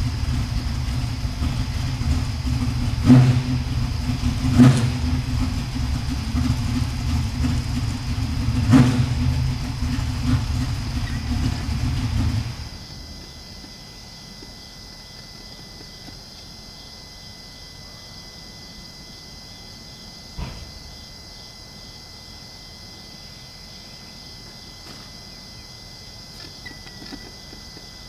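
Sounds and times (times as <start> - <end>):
short knock: 20.4 - 20.7.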